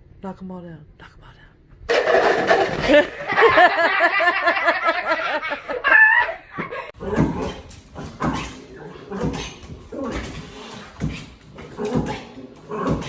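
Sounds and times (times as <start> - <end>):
knocks and clatters: 1.9 - 3.7
person laughing: 2.8 - 6.9.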